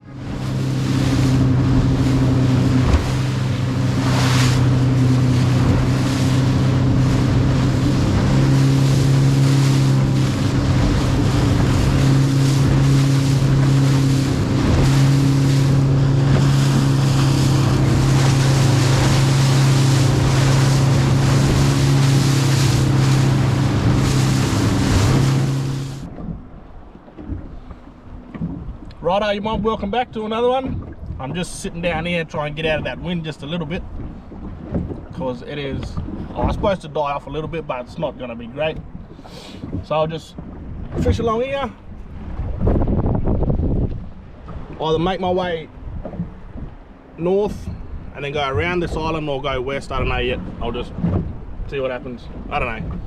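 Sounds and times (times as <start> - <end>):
wind buffeting microphone: 0.0 - 29.9, 38.8 - 53.0
hull through choppy water: 0.0 - 53.0
motorboat engine humming: 0.0 - 53.0.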